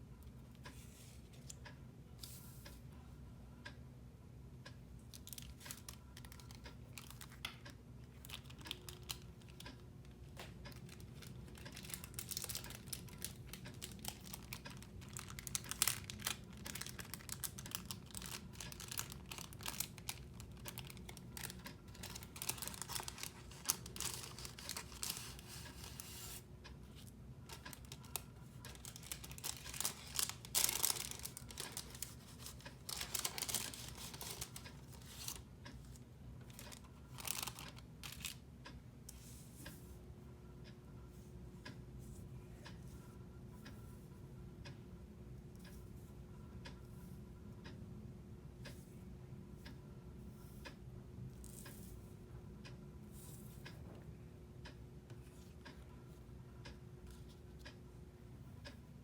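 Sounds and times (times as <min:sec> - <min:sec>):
small rustles and clicks: 0:05.1 - 0:39.8
packaging crinkling and tearing: 0:05.2 - 0:07.4, 0:10.6 - 0:26.4, 0:27.5 - 0:35.4, 0:36.5 - 0:38.4.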